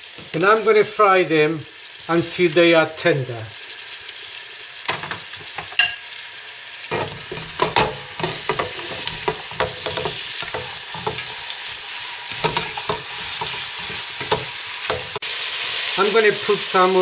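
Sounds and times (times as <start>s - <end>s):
vegetables sizzling in oil: 0.0s - 17.0s
spoon scraping metal pot: 6.9s - 11.6s, 12.3s - 15.2s.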